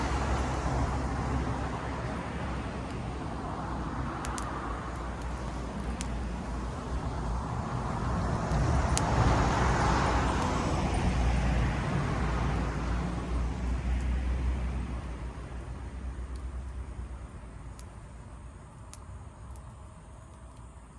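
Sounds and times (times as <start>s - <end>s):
road vehicle passing by: 0.0s - 17.8s
faint sharp clicks: 4.2s - 6.5s, 17.7s - 18.0s, 18.7s - 20.8s.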